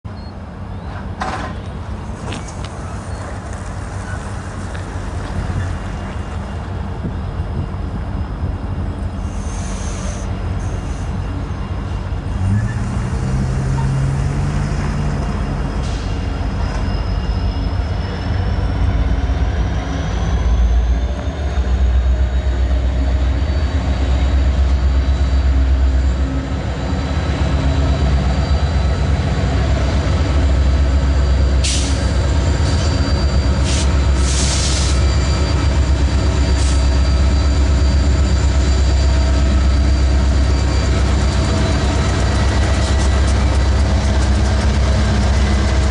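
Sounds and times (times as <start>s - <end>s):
train wheels rumbling on rail: 0.1s - 45.9s
faint wheel squeal: 9.2s - 12.9s, 15.6s - 45.9s.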